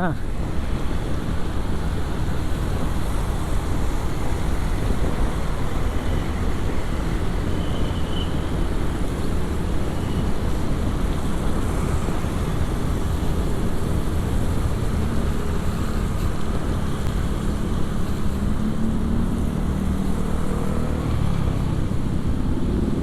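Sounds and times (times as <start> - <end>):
wind rush on microphone: 0.1 - 23.0.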